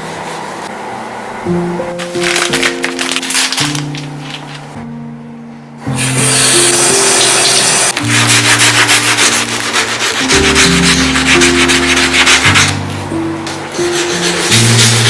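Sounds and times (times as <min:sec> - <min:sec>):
brush scrubbing: 0:06.0 - 0:15.0.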